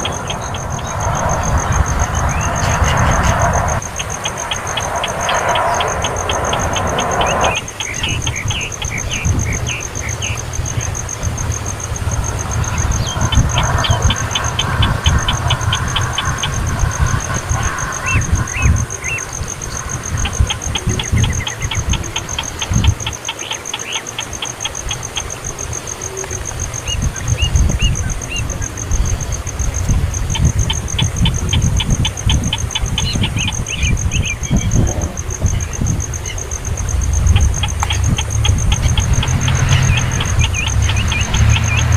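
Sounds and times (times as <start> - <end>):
high pulsing tone: 0.0 - 9.4, 35.4 - 41.9
low rumble: 0.0 - 23.1, 33.9 - 41.9
very high pulsing: 0.0 - 26.8, 29.7 - 41.9
hiss: 10.9 - 24.6.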